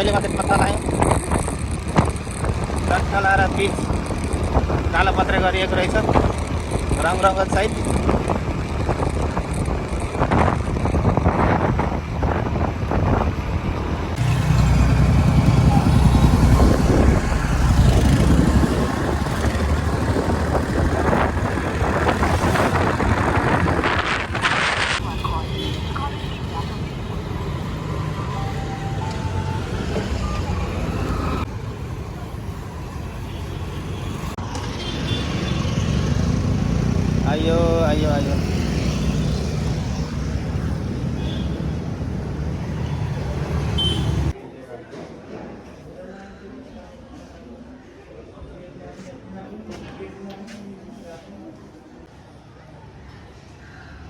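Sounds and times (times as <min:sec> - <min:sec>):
wind buffeting microphone: 0:00.0 - 0:25.4
motorcycle rumble: 0:00.0 - 0:25.7.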